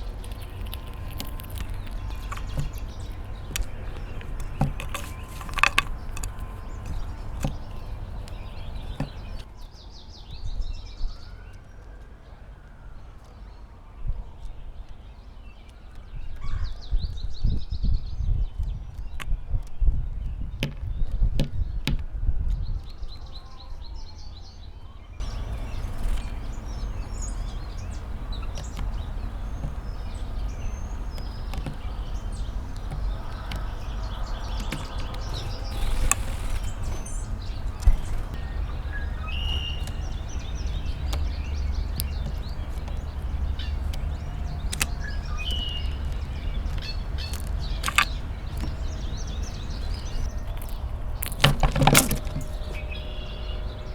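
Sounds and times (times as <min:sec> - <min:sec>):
bird chirps: 0:00.0 - 0:09.5, 0:25.2 - 0:53.9
sharp clicks: 0:00.0 - 0:09.5, 0:25.2 - 0:53.1.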